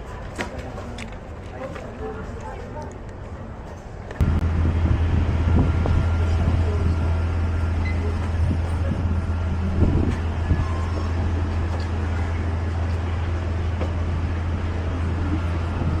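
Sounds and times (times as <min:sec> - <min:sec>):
vehicle interior rumble: 0:04.1 - 0:16.0.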